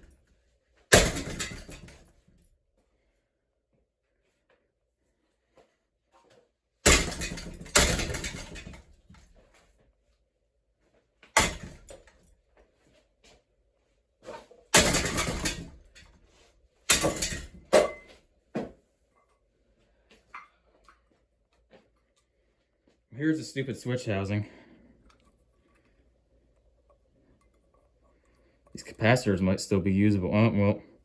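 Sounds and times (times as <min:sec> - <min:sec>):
ceiling fan being smashed: 0:00.9 - 0:02.2, 0:06.8 - 0:09.3, 0:11.3 - 0:12.3, 0:14.3 - 0:16.2, 0:16.9 - 0:18.7
metal rattle: 0:00.9 - 0:02.2, 0:06.8 - 0:09.3, 0:11.4 - 0:12.2, 0:14.3 - 0:16.2, 0:16.9 - 0:18.1.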